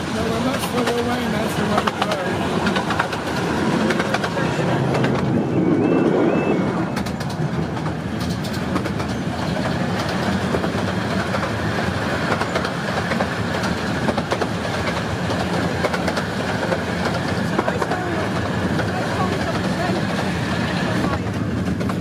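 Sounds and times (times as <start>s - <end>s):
wheels clicking over rail joints: 0.0s - 5.4s, 6.9s - 22.0s
train wheels rumbling on track: 0.0s - 22.0s.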